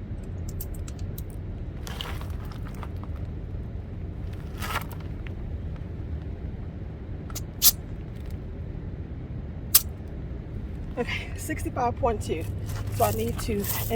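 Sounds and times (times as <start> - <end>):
low rumble: 0.0 - 13.9
air hissing from tyre valve: 7.3 - 7.8.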